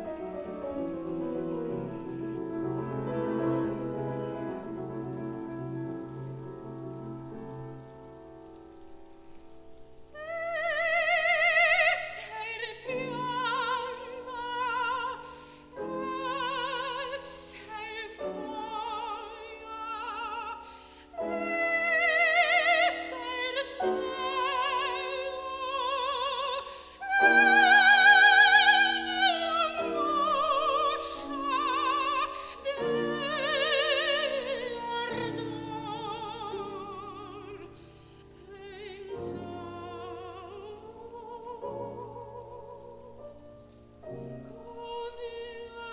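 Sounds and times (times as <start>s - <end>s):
piano accompaniment: 0.0s - 45.9s
soprano singing with vibrato: 10.1s - 45.9s.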